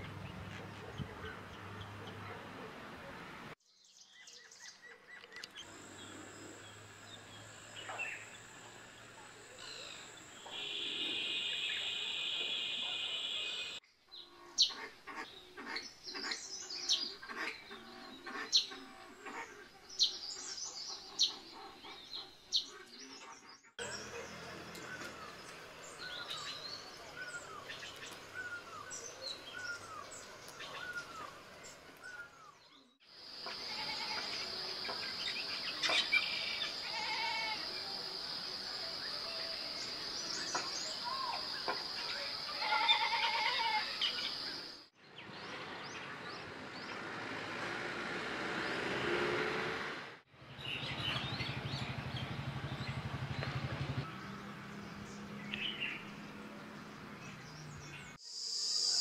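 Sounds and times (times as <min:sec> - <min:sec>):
mixed bird calls: 0:03.8 - 0:47.0
bird chirps and clicks: 0:05.1 - 0:05.6
bird down-slurred call: 0:09.6 - 0:13.8.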